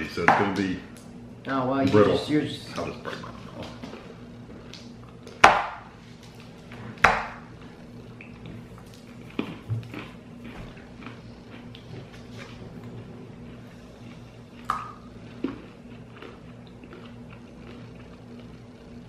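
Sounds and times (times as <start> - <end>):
mouth chewing crunchy bar: 8.3 - 19.0.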